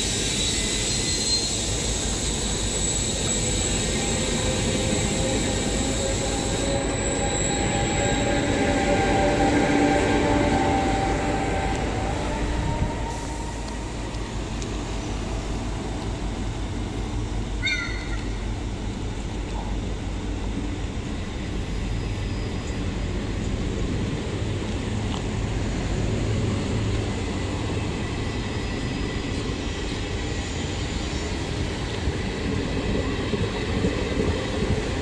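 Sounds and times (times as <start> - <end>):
wheel squeal: 0.0 - 14.0
train wheels rumbling on rails: 0.0 - 35.0.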